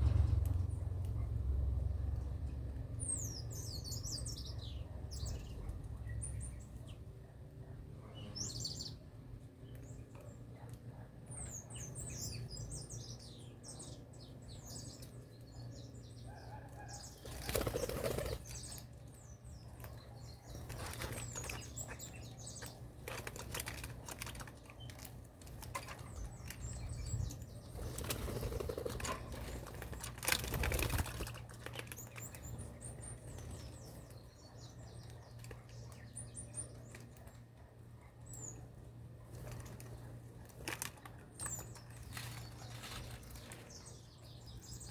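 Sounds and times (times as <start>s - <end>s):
small birds chirping: 0.0s - 44.9s
steady low hum: 0.0s - 44.9s
wings flapping: 17.2s - 18.7s, 27.7s - 32.3s.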